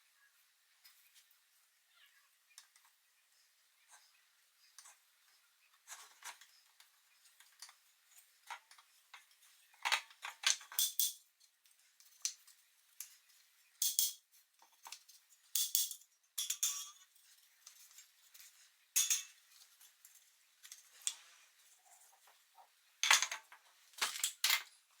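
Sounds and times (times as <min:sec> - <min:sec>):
small hard objects clinking: 0:13.8 - 0:21.1.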